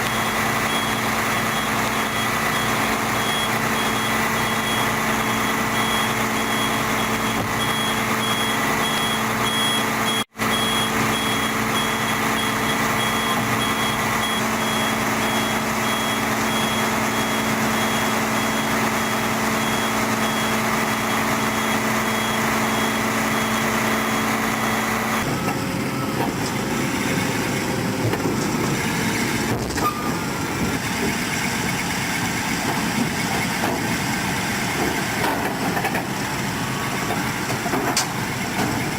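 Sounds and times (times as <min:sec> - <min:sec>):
reversing alarm beeping: 0:00.0 - 0:25.3
diesel engine running: 0:00.0 - 0:38.9.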